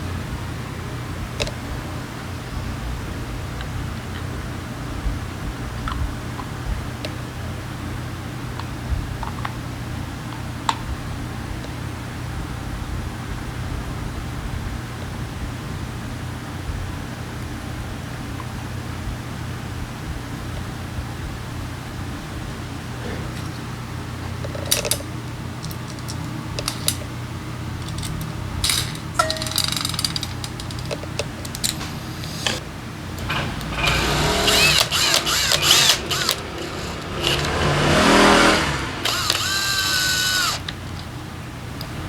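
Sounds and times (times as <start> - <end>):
steady low hum: 22.3 - 42.0
tools and metal parts clattering: 24.4 - 27.1, 27.7 - 37.6
brief whir: 31.5 - 40.8.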